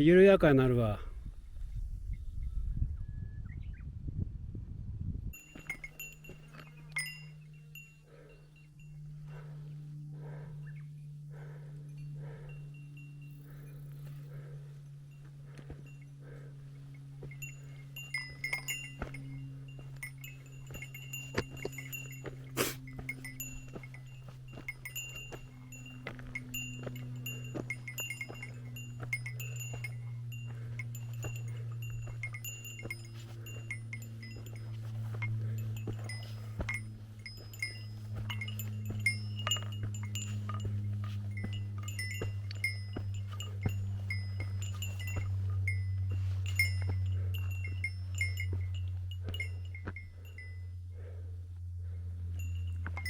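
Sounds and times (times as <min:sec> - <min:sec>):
steady low hum: 0:00.0 - 0:53.0
small bell jingling: 0:05.4 - 0:09.4, 0:16.9 - 0:50.8, 0:52.2 - 0:53.0.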